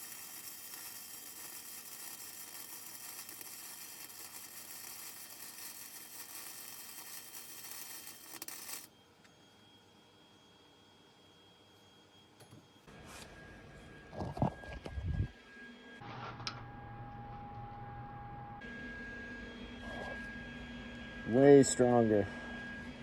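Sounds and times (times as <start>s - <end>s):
welding arc crackling and hissing: 0.0s - 8.9s
thin high whine: 0.0s - 23.0s.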